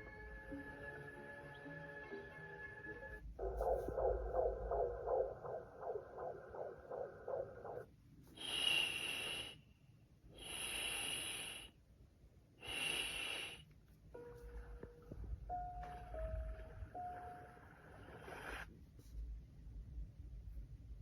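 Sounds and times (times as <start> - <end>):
quick pulsing sound: 3.4 - 7.9
breath-like hissing sounds: 8.3 - 9.7, 10.3 - 11.8, 12.6 - 13.7, 17.6 - 18.7.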